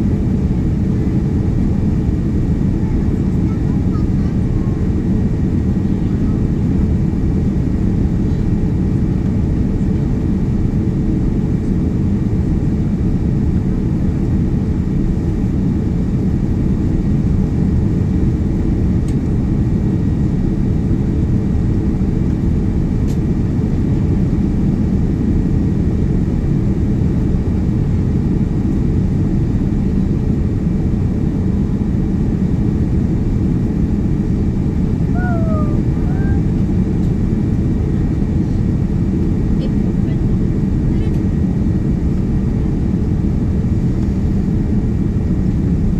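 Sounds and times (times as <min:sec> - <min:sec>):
airliner cabin engine rumble: 0:00.0 - 0:45.9.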